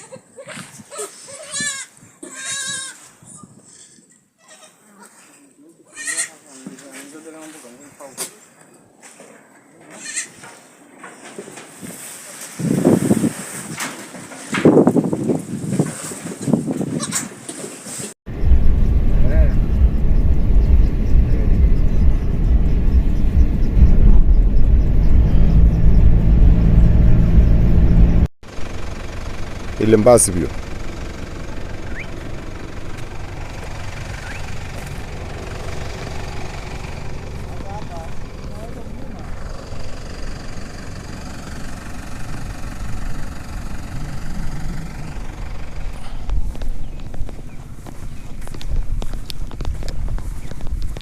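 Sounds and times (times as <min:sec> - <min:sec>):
engine low rumble: 0:18.3 - 0:51.0
steady engine hum: 0:18.3 - 0:51.0.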